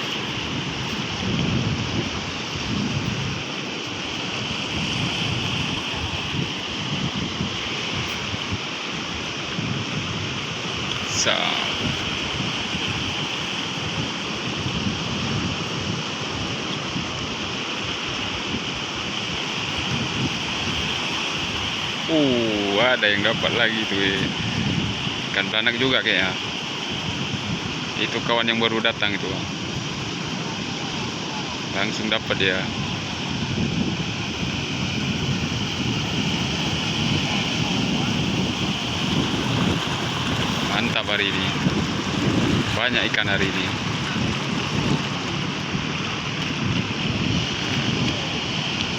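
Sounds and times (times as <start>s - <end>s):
wind buffeting microphone: 0.0s - 48.9s
surf breaking: 19.3s - 48.9s.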